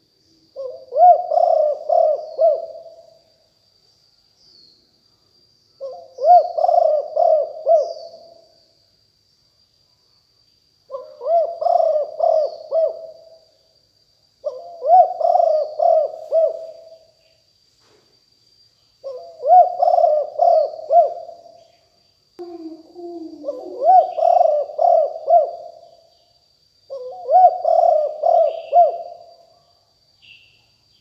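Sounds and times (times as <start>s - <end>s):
dove cooing: 0.6s - 3.0s, 5.8s - 8.4s, 10.9s - 13.3s, 14.4s - 17.0s, 19.0s - 21.4s, 22.4s - 25.8s, 26.9s - 29.3s.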